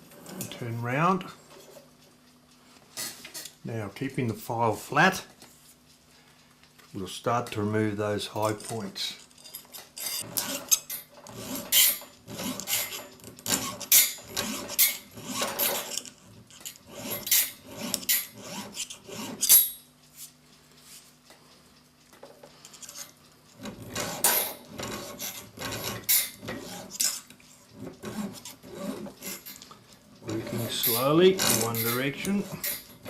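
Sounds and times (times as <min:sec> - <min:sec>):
hand file rasping on steel: 0:10.0 - 0:19.7, 0:23.8 - 0:29.5, 0:30.2 - 0:33.0.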